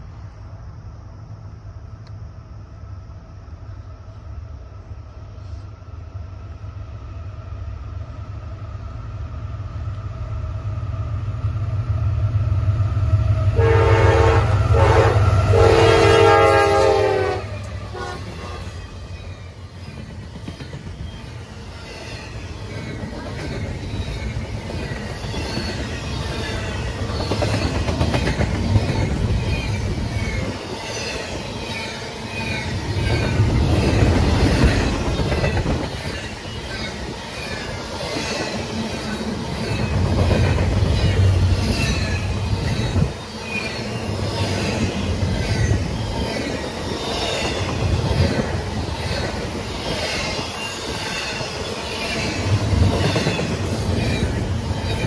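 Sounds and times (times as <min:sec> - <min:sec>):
train rumbling past: 0:00.0 - 0:55.0
high wheel squeal: 0:18.2 - 0:27.9, 0:28.7 - 0:55.0.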